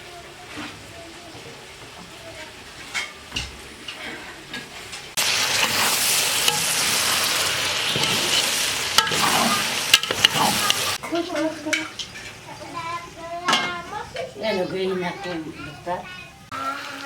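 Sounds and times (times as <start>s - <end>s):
food sizzling in a pot: 0.0s - 17.0s
utensil scraping a pot: 5.6s - 11.0s.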